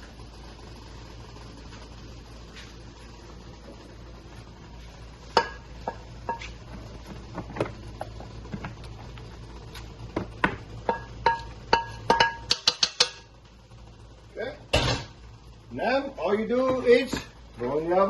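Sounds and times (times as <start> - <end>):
clinks against a metal pan: 10.9 - 13.3.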